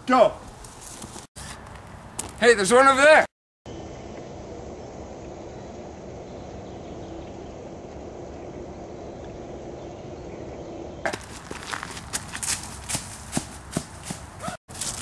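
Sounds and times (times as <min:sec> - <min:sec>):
outdoor background noise: 0:00.0 - 0:15.0
footsteps through brush: 0:11.1 - 0:15.0.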